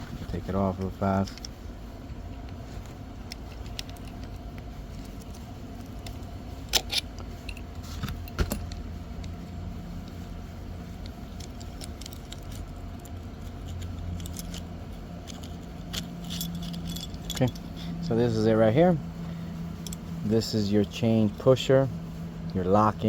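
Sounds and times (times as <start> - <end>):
steady low hum: 0.0 - 23.0
clicks and clinks of hard parts: 11.0 - 17.8.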